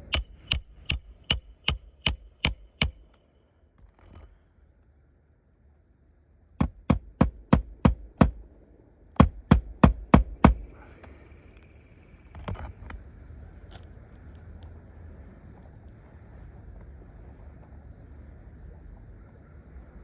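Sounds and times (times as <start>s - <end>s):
hammer driving nails: 0.0s - 3.2s, 6.6s - 8.4s, 9.2s - 10.8s
dull knock: 6.6s - 8.4s.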